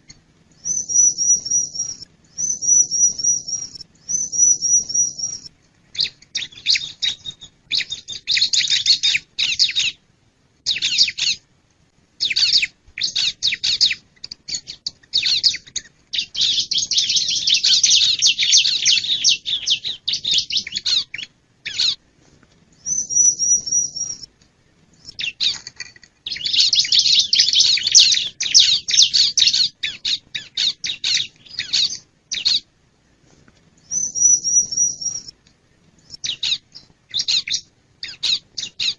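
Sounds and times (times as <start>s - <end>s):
high rapid bird trill: 0.6s - 10.0s, 12.2s - 22.0s, 22.8s - 24.3s, 26.3s - 32.7s, 33.9s - 35.3s
bird singing chattering phrases: 12.2s - 22.0s, 22.8s - 24.3s, 25.0s - 32.7s, 33.9s - 35.3s, 36.0s - 38.9s.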